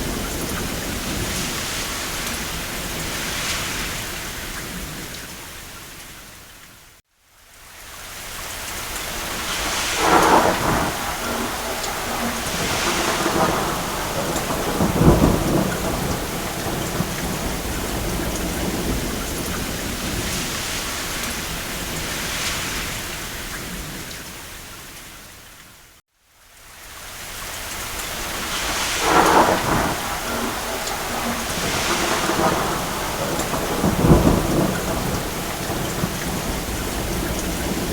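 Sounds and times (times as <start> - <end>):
heavy rain on a roof: 0.0 - 37.9
rolling thunder: 9.1 - 24.1, 28.1 - 37.9.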